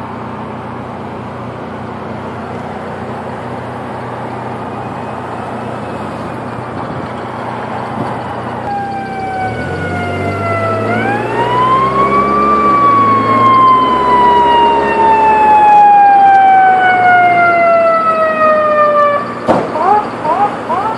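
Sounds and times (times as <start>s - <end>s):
mechanical siren winding: 8.6s - 9.9s.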